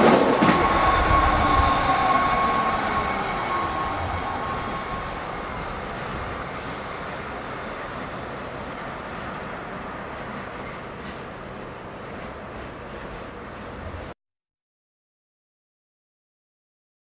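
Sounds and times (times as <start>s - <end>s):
electric train rumble: 0.0s - 14.2s
thin whine: 0.4s - 6.9s
brief hiss: 6.4s - 7.3s.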